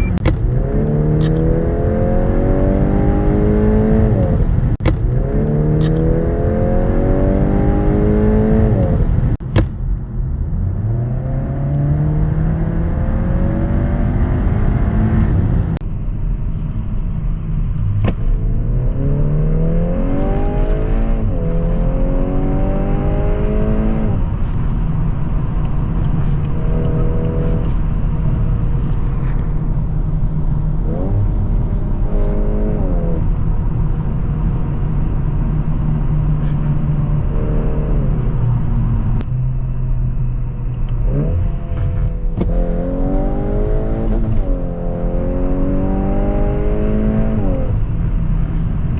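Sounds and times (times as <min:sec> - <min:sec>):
engine throttle blips: 0:00.0 - 0:10.2
car engine accelerating hard: 0:00.0 - 0:15.8, 0:16.5 - 0:48.9
road noise rumble: 0:00.0 - 0:48.9.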